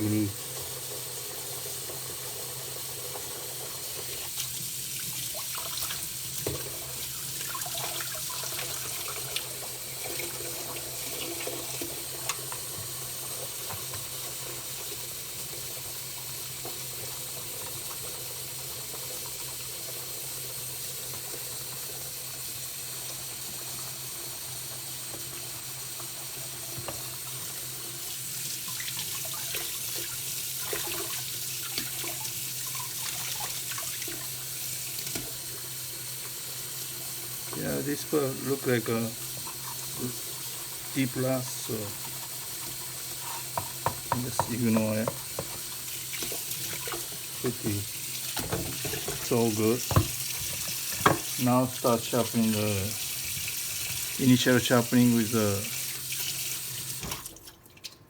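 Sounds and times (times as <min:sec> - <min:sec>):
tap water running into sink: 0:00.0 - 0:58.0
knife knocking while washed: 0:43.4 - 0:47.6, 0:48.4 - 0:51.4.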